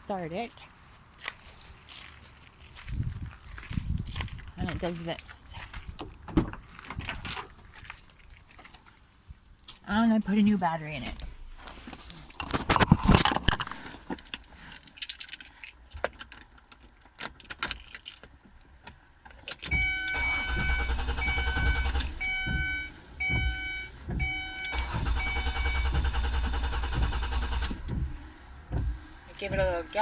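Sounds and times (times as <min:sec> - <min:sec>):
keys jangling: 0:14.7 - 0:18.3
dashboard warning chime: 0:19.7 - 0:26.2
starter cranking engine: 0:20.0 - 0:23.6, 0:24.2 - 0:28.2.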